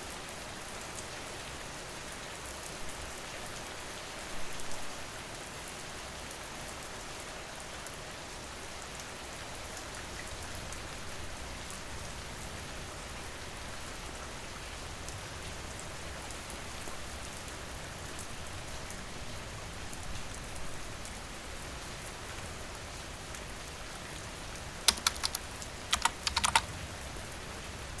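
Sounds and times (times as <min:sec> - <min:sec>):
steady rain: 0:00.0 - 0:28.0
sharp clicks: 0:24.9 - 0:26.7.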